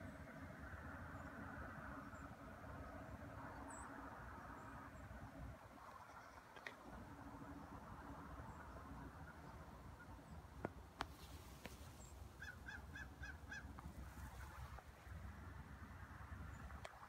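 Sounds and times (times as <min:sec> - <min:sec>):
faint outdoor background: 0:00.0 - 0:17.0
bird calling: 0:05.8 - 0:14.7.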